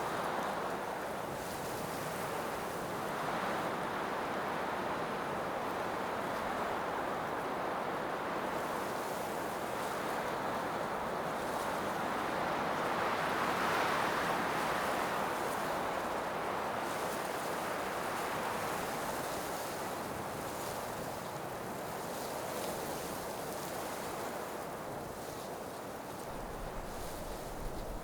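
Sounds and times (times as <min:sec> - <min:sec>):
blizzard wind blowing: 0:26.3 - 0:28.0.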